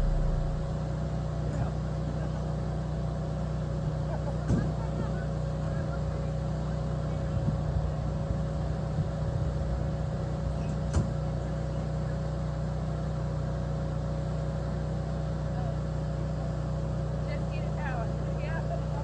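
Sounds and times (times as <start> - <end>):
engine running: 0.0 - 1.6.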